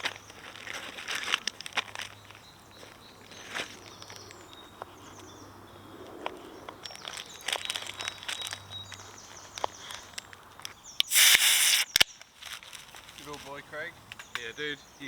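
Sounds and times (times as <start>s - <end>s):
birds chirping and trilling: 2.0s - 11.1s, 14.1s - 15.0s
sharp clicks: 11.0s - 12.1s.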